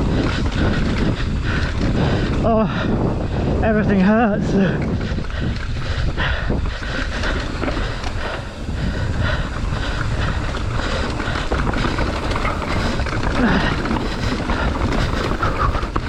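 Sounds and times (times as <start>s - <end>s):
wind buffeting microphone: 0.0s - 16.0s
mountain bike clattering over rock: 9.5s - 16.0s.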